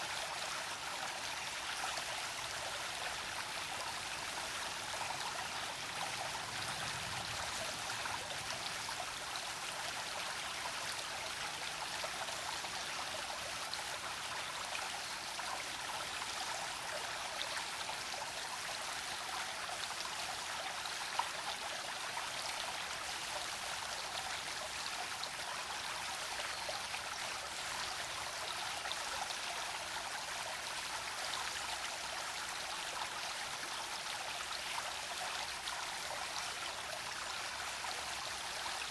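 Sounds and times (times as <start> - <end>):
stream trickling over stones: 0.0 - 38.9.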